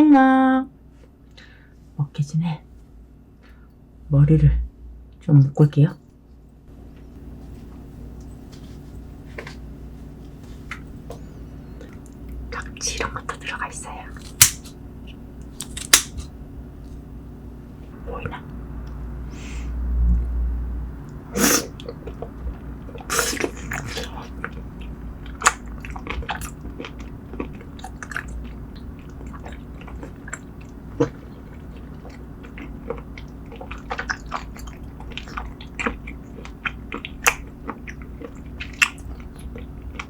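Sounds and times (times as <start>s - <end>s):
steady low hum: 0.0s - 40.0s
wet chewing and biting: 14.1s - 16.3s, 21.8s - 40.0s
loud crunches: 14.2s - 14.7s, 15.6s - 16.3s.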